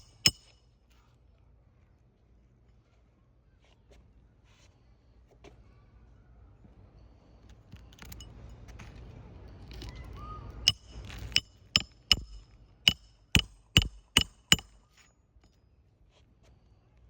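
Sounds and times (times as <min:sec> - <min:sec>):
hammer striking a nail: 0:00.0 - 0:00.6, 0:10.7 - 0:14.8.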